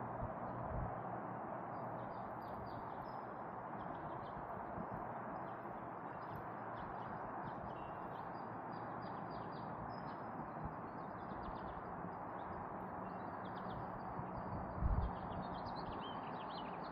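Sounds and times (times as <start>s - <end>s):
small birds chirping: 5.2s - 16.9s.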